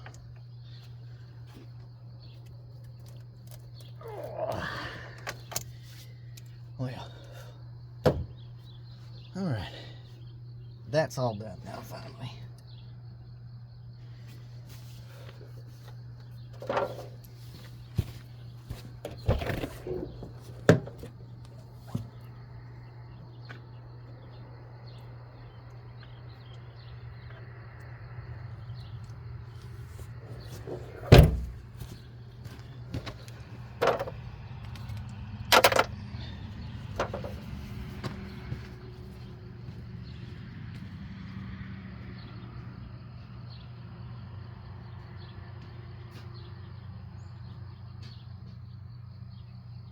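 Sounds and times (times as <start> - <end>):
tools and brake parts clanking: 16.5 - 17.4, 29.9 - 34.2, 35.5 - 37.5.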